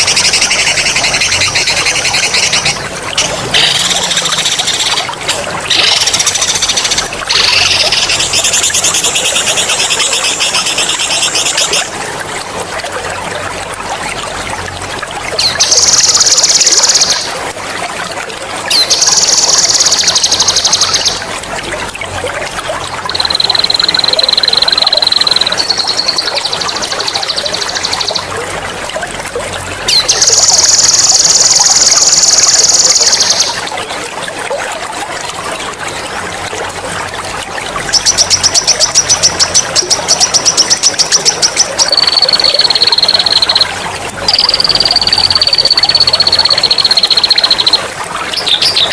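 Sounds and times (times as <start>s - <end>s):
running water trickling: 0.0s - 48.9s
songbird singing rolling trills: 23.1s - 28.3s, 38.0s - 43.7s, 44.3s - 48.9s.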